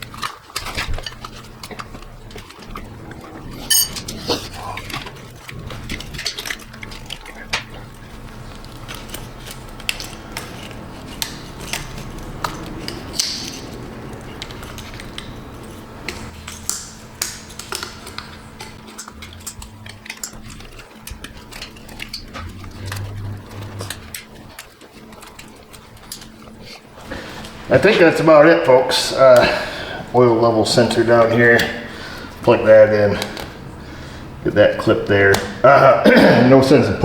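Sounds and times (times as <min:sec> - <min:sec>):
faint low hum: 0:00.0 - 0:37.0
metal hand tools clinking: 0:03.7 - 0:04.2.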